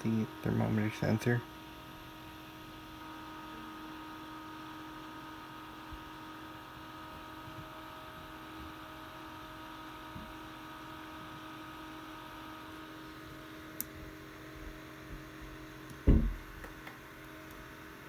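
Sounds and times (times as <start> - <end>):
steady multi-tone hum: 0.0 - 18.0
soft low thumps: 16.0 - 16.5.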